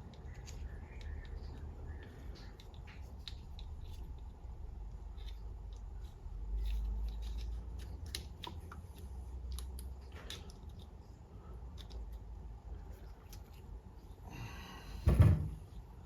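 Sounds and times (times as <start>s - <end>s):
small clicks and taps of parts: 0.0s - 13.7s.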